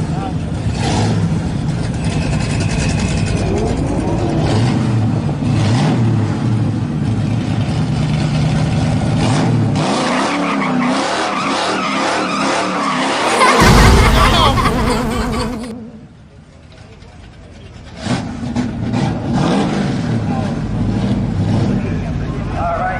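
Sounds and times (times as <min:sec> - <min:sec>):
vehicle engine revving: 0:13.2 - 0:15.7.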